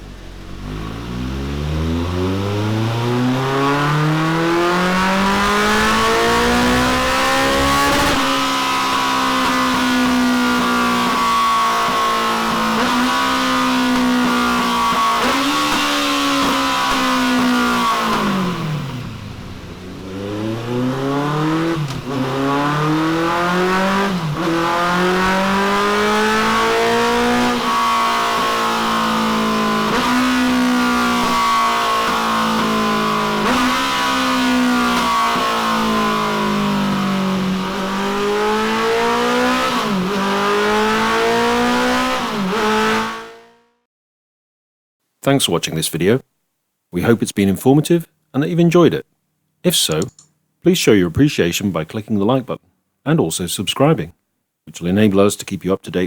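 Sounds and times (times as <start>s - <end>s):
motorcycle engine accelerating: 0.0s - 43.8s.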